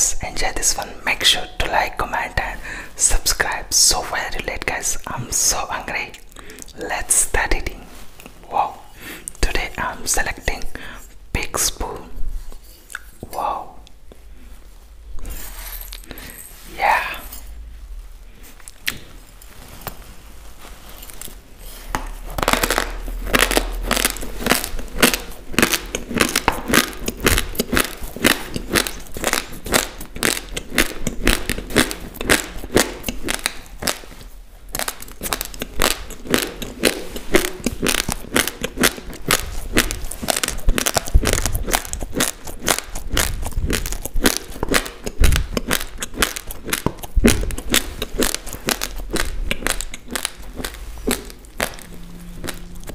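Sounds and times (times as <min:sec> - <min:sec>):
chewing crunchy raw rice: 0:21.0 - 0:52.9.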